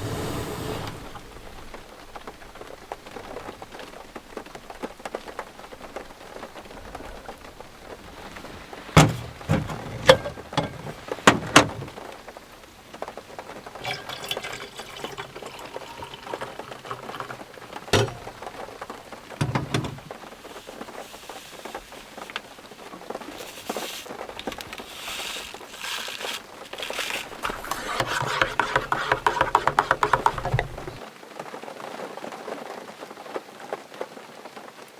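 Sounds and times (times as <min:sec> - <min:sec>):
steady rain falling: 0:00.0 - 0:13.8, 0:15.6 - 0:27.4
rustling of gear: 0:17.2 - 0:28.3.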